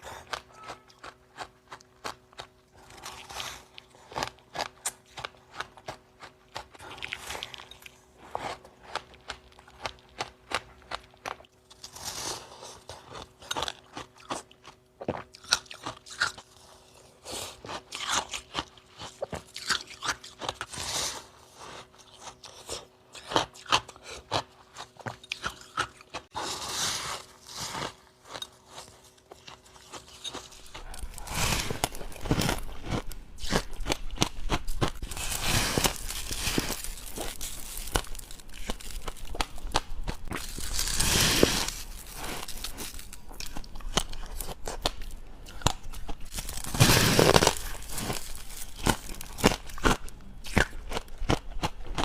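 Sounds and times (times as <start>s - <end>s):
chewing ice crunches: 0.0s - 21.2s, 21.8s - 52.0s.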